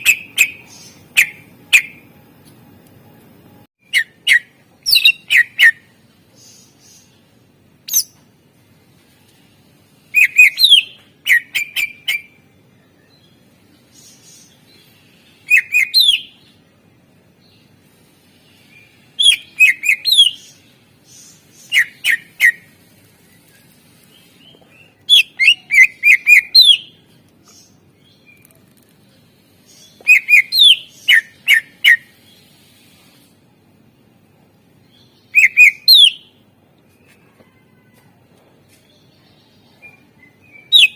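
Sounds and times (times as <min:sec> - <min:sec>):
bird singing whistled phrases: 0:10.2 - 0:12.3, 0:15.4 - 0:16.4, 0:19.2 - 0:20.5, 0:25.1 - 0:27.0, 0:30.0 - 0:32.1, 0:35.3 - 0:36.3, 0:39.8 - 0:40.9.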